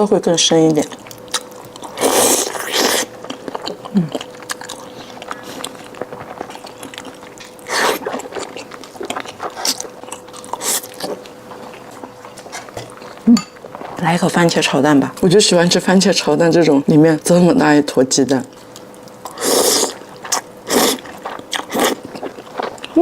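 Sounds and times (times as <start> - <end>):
faint steady hum: 0.0 - 23.0
person chewing food: 0.8 - 14.0, 18.5 - 23.0.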